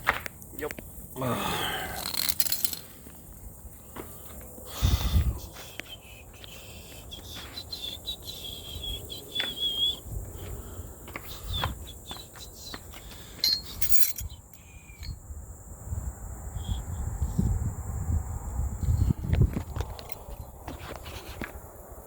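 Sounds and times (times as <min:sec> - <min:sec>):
bird chirping: 0:05.8 - 0:10.4, 0:11.2 - 0:15.2.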